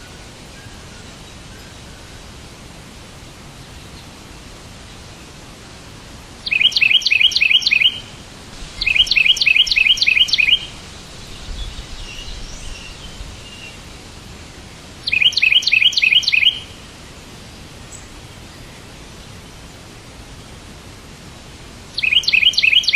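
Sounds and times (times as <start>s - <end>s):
steady background hiss: 0.0s - 22.9s
songbird chirping phrases: 6.4s - 19.8s, 22.0s - 22.9s
faint bird chatter: 8.7s - 13.9s.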